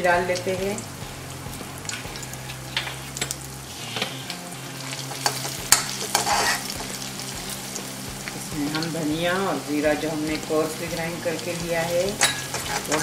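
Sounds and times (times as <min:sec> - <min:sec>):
food sizzling in hot oil: 0:00.0 - 0:13.0
metal spoon scraping and tapping pan: 0:01.9 - 0:08.4, 0:11.8 - 0:13.0.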